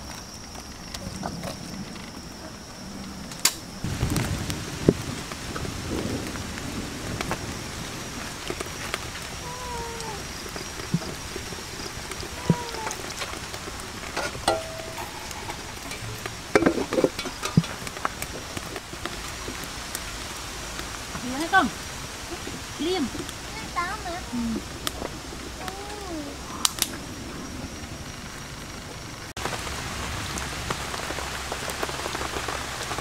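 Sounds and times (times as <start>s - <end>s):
wood fire crackling and popping: 0.0s - 33.0s
food sizzling in a wok: 3.9s - 26.8s
metal lid clattering on wok: 14.2s - 17.8s.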